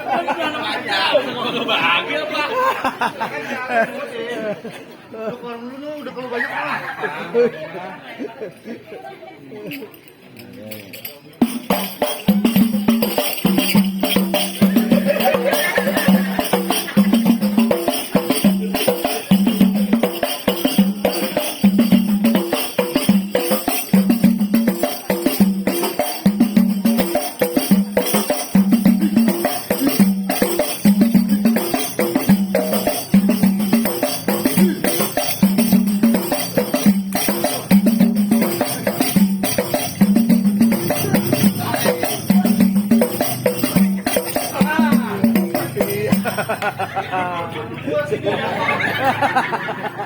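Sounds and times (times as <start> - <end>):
tambourines jingling: 9.9 - 47.1
hand drums: 11.4 - 46.9.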